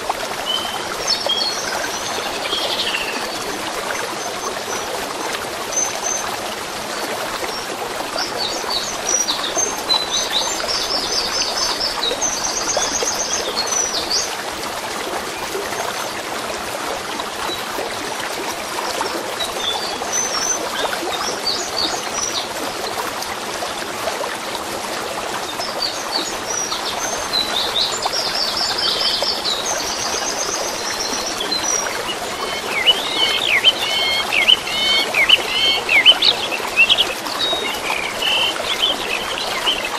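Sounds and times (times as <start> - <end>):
songbirds singing: 0.0 - 4.9, 25.5 - 39.9
running water: 0.0 - 39.9.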